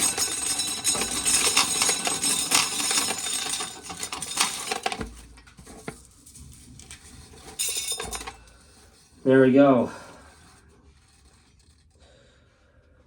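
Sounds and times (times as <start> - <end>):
corn kernels rattling: 0.0 - 9.0.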